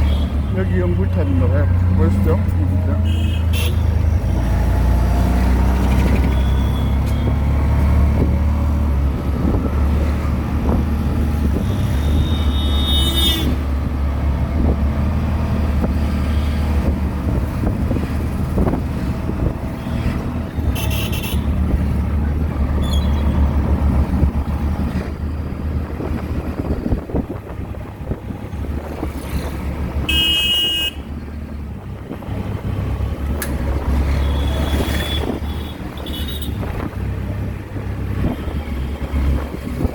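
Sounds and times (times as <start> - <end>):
vehicle horns honking: 0.0 - 4.0, 6.3 - 7.5, 11.6 - 13.6, 19.8 - 21.6, 30.0 - 31.2, 34.1 - 36.7
auto-rickshaw engine running: 0.0 - 39.9.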